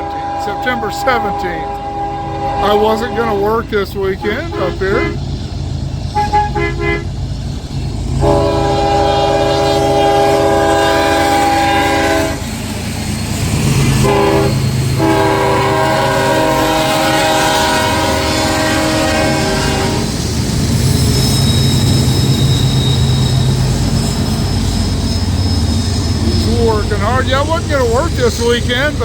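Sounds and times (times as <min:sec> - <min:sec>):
locomotive air horn: 0:00.0 - 0:05.3, 0:06.1 - 0:07.2, 0:08.2 - 0:12.4, 0:14.0 - 0:20.1
passing train rumble: 0:00.0 - 0:29.0.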